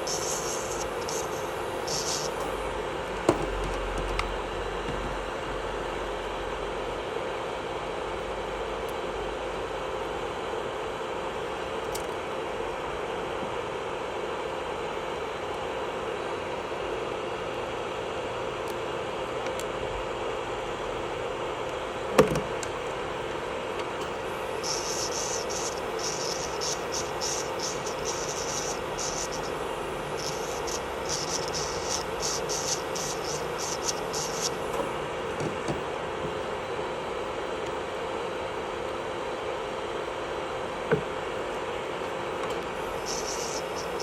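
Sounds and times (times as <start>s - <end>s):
high hissing spurts: 0.0s - 2.6s, 24.3s - 34.8s, 42.8s - 44.0s
electric nail drill humming: 0.0s - 2.8s, 24.1s - 34.9s, 42.8s - 44.0s.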